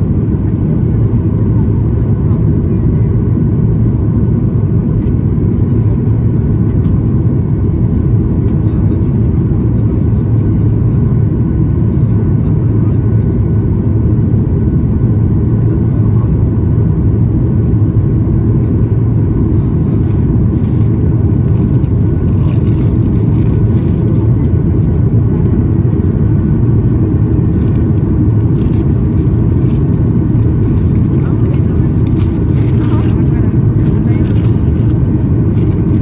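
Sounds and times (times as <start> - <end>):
airliner cabin roar: 0.0 - 36.0.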